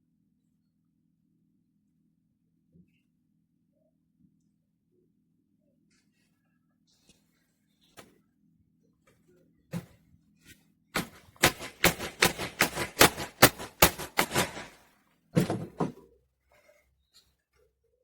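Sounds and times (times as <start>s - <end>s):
sharp knocks: 11.0s - 14.8s.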